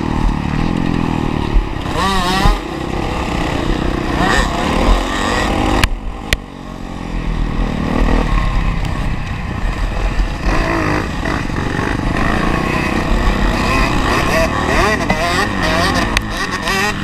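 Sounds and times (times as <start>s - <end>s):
motocross engine revving: 0.0s - 17.0s.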